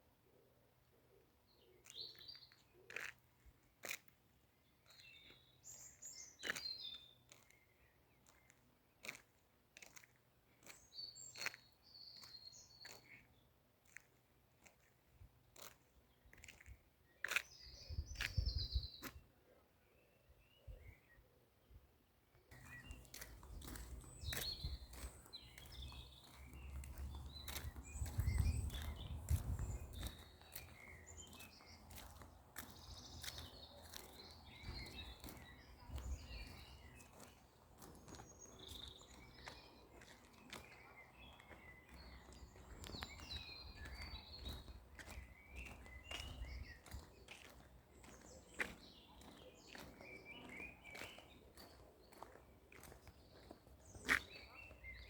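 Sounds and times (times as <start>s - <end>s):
birds chirping: 22.5s - 55.0s.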